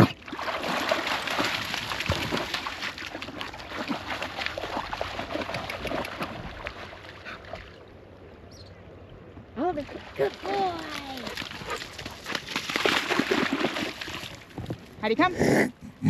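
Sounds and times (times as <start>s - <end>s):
dog splashing in water: 0.0s - 7.8s, 9.9s - 14.8s.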